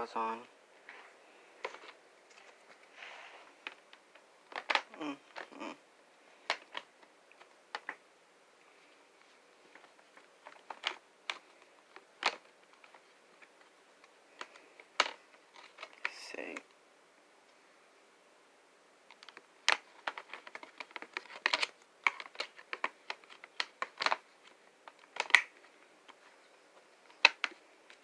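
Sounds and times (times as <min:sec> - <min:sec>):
plastic parts clicking and knocking: 0:03.6 - 0:05.6, 0:06.4 - 0:08.0, 0:09.7 - 0:16.2, 0:19.1 - 0:28.0.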